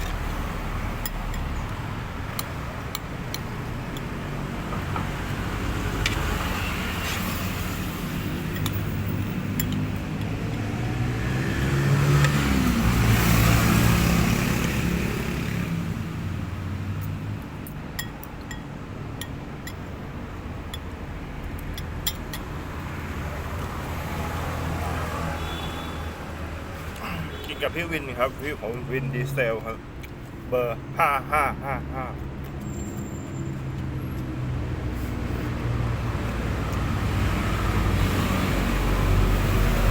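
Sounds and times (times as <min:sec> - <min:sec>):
low traffic rumble: 0:00.0 - 0:39.9
vehicle passing: 0:04.2 - 0:17.3, 0:33.5 - 0:39.9.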